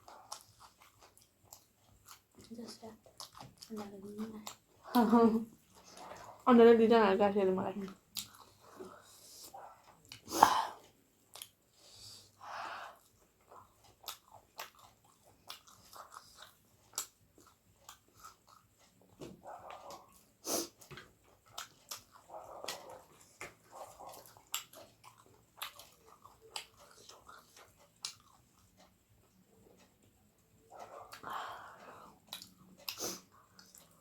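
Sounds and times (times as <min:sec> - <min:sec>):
person chewing: 0:00.0 - 0:06.4, 0:07.9 - 0:34.0.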